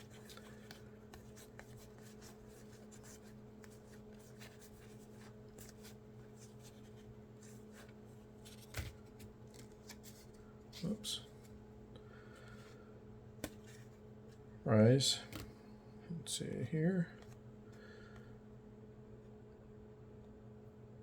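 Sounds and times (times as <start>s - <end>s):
trading cards rustling: 0.0s - 11.6s
steady low hum: 0.0s - 21.0s.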